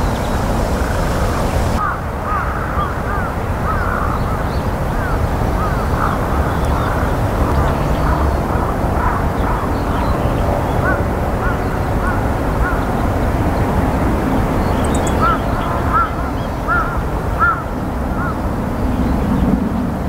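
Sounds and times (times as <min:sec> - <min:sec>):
steady low rumble: 0:00.0 - 0:02.2.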